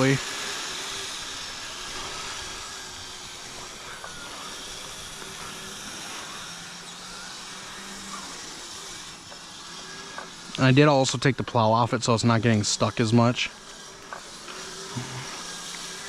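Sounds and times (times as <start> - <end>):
even hiss: 0.0 - 5.8, 9.8 - 16.0
electric motors whining: 0.0 - 16.0.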